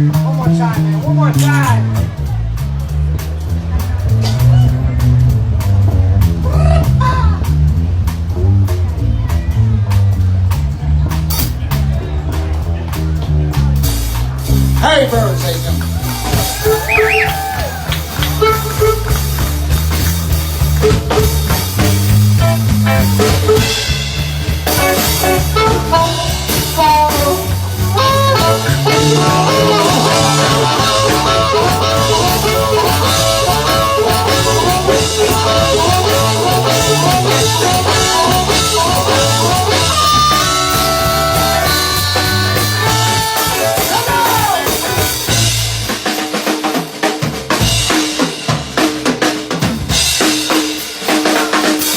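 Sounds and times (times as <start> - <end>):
bass line: 0.0 - 51.9
drum kit: 0.0 - 51.9
lead melody line: 14.7 - 45.9.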